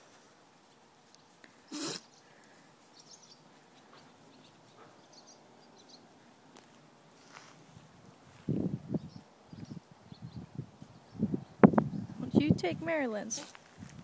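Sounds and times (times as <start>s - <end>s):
dog sneezing: 1.7s - 2.1s.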